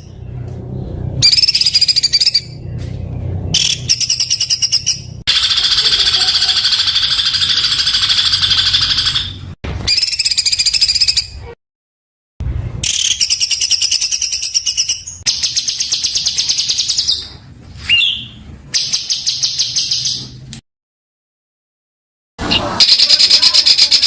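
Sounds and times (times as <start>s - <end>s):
bird rattling trills: 3.6s - 11.1s.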